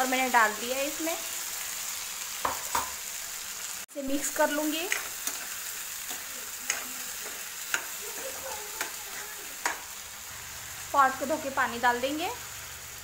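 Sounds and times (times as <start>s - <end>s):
food sizzling in hot oil: 0.0s - 13.0s
spoon knocking against pan: 2.4s - 3.0s.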